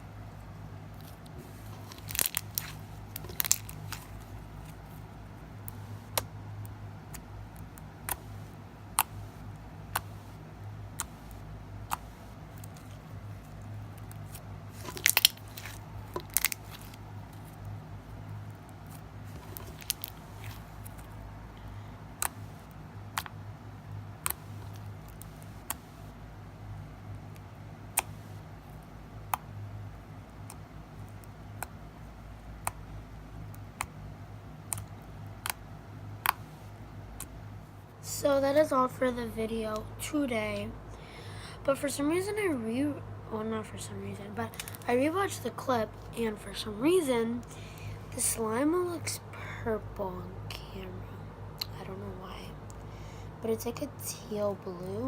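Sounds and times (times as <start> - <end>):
steady low hum: 0.0 - 55.0
slime popping and clicking: 14.3 - 17.0.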